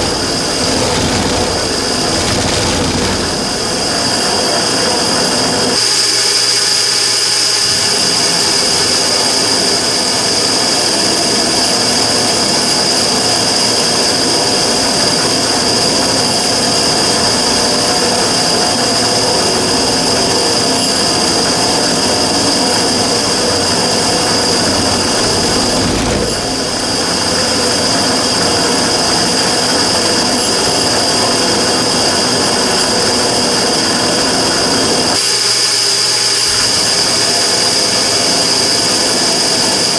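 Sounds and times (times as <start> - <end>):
burner whining and rushing: 0.0 - 4.0, 24.4 - 27.2.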